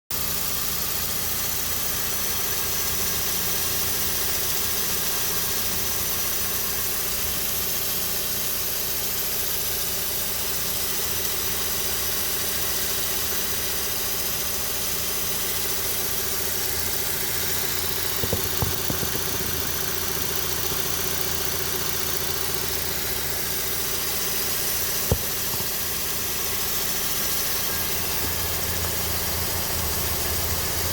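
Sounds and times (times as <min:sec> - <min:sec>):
car engine idling: 0:00.1 - 0:30.9
belt pulley running noise: 0:16.2 - 0:25.9.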